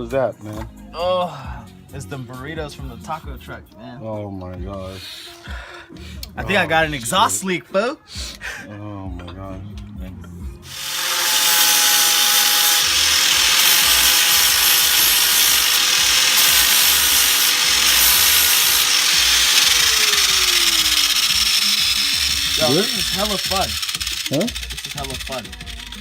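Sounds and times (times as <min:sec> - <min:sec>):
power sander running: 0:10.7 - 0:26.0.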